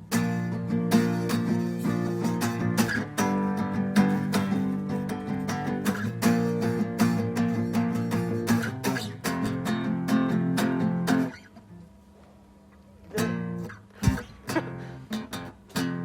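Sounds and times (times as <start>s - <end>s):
guitar strumming: 0.0s - 11.8s, 13.1s - 16.0s
sharp low thump: 14.0s - 14.5s.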